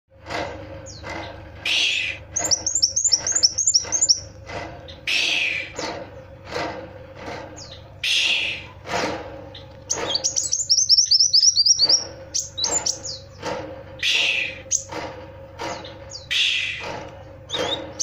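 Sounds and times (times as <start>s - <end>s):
bird chirping and trilling: 0.5s - 6.4s, 7.5s - 8.8s, 9.5s - 18.0s.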